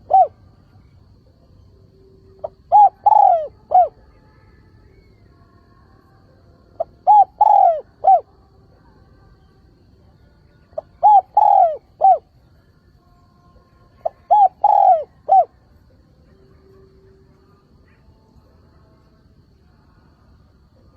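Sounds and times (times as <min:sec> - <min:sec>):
dove cooing: 0:00.0 - 0:00.6, 0:02.2 - 0:04.1, 0:06.8 - 0:08.3, 0:10.8 - 0:12.4, 0:14.0 - 0:15.6.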